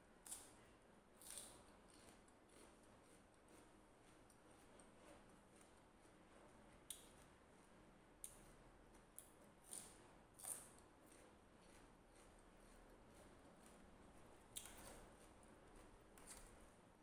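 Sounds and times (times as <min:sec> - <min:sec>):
low room noise: 0:00.0 - 0:17.0
eating crunches: 0:01.2 - 0:05.7.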